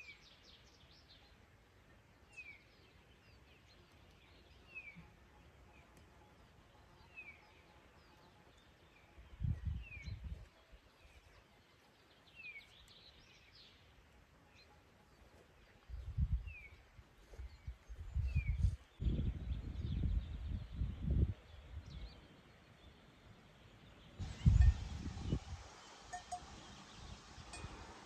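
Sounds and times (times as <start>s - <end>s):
bird chirping: 0.0s - 13.9s
outdoor background noise: 0.0s - 28.0s.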